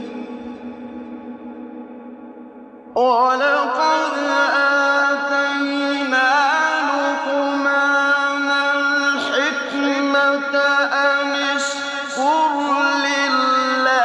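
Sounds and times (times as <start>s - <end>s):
steady low drone: 0.0s - 7.0s
melismatic vocal chanting: 0.0s - 14.0s.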